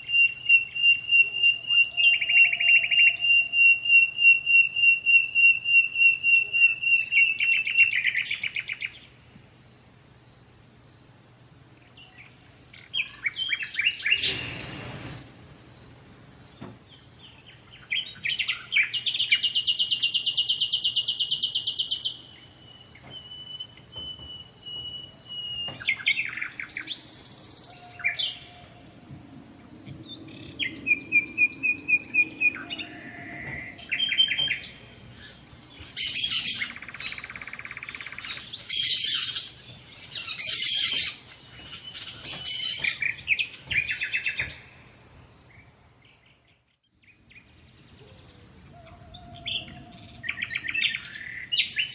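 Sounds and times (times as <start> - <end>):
songbirds singing: 0.0 - 51.9
fast bird trill: 30.2 - 44.6.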